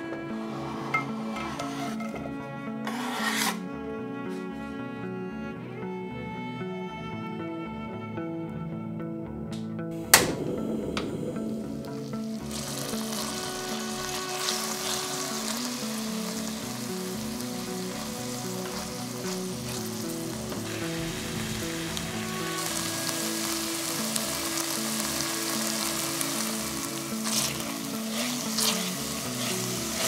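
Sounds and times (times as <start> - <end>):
soft background music: 0.0 - 30.0
vegetables sizzling in oil: 11.4 - 30.0.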